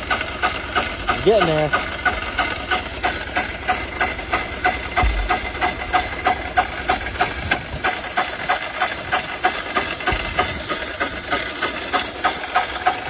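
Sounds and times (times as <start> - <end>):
electric starter cranking diesel engine: 0.0 - 13.0.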